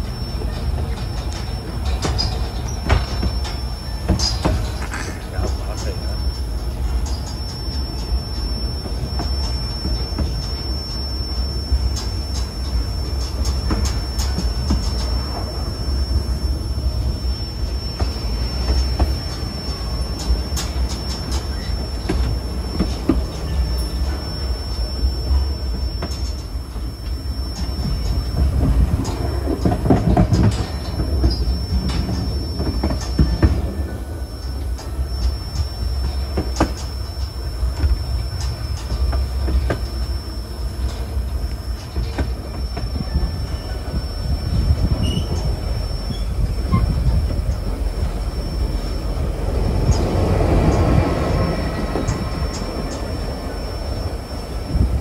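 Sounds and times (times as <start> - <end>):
high wheel squeal: 0.0 - 55.0
train car rumbling on track: 0.0 - 55.0.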